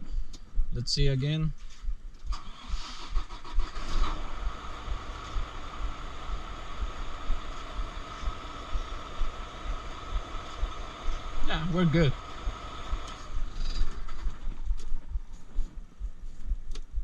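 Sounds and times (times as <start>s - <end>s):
diesel truck engine idling: 3.1s - 14.6s.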